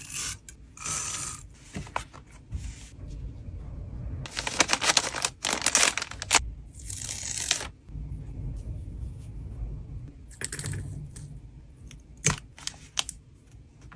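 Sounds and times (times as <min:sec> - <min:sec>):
low wind rumble: 0:02.6 - 0:06.8, 0:07.7 - 0:12.2
plastic packaging crinkling: 0:04.3 - 0:06.4.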